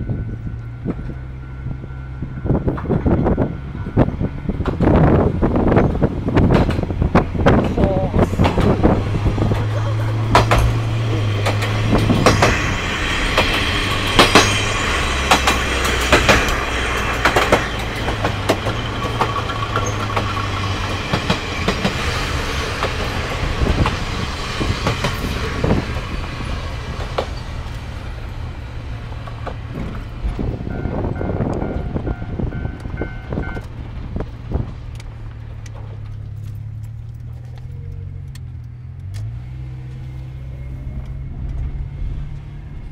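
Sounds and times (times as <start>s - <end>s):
diesel railcar engine drone: 0.0s - 42.9s
wheels clicking over rail joints: 4.5s - 12.7s, 13.3s - 39.4s.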